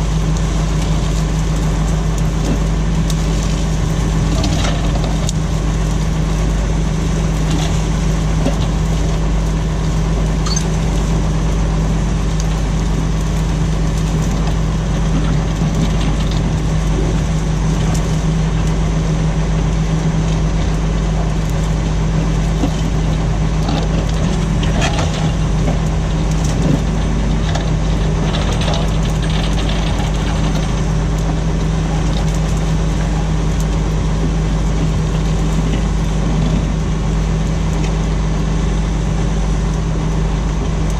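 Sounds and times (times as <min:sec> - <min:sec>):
tractor engine droning: 0:00.0 - 0:40.9
faint clicks and knocks: 0:22.5 - 0:33.8.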